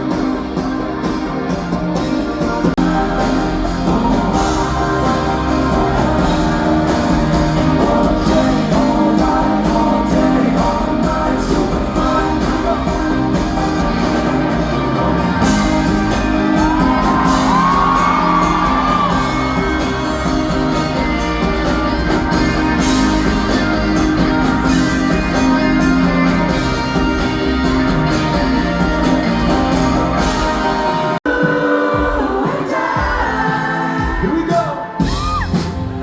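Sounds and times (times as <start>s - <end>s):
live pop band playing: 0.0s - 36.0s
person singing: 0.0s - 36.0s
crowd shouting and whooping: 12.2s - 36.0s.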